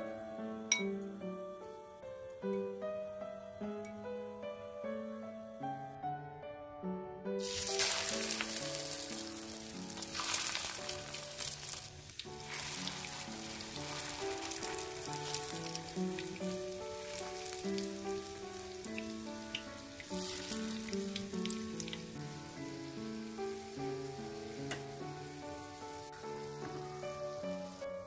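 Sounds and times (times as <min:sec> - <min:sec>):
soft background music: 0:00.0 - 0:28.0
food sizzling in hot oil: 0:07.4 - 0:28.0.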